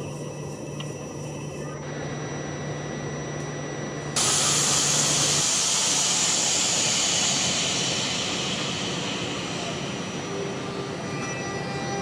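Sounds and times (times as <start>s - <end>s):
steady low hum: 0.0s - 12.0s
loud hiss of air: 4.2s - 11.9s.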